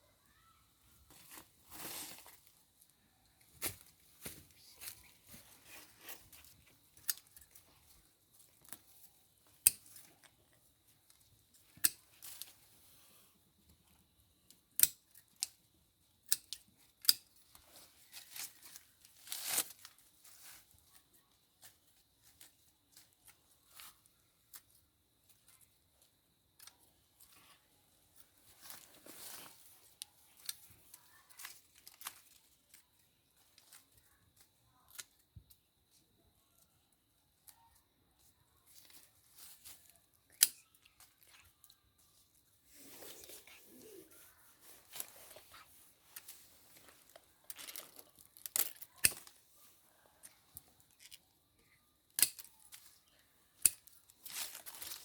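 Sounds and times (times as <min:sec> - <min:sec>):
rustling crinkling: 0:01.1 - 0:02.6, 0:27.2 - 0:32.8, 0:38.7 - 0:51.2, 0:52.6 - 0:55.0.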